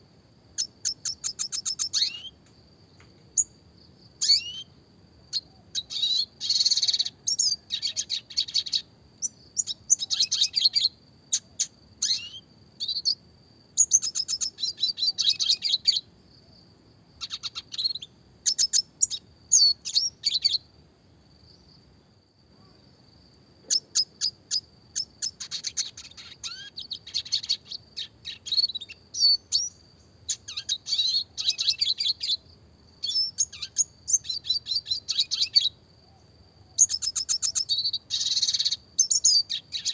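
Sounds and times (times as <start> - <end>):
bird chirps and trills: 0.6 - 2.4, 4.2 - 13.2, 13.8 - 16.1, 17.2 - 20.6, 23.7 - 32.4, 33.0 - 35.8, 36.8 - 39.9.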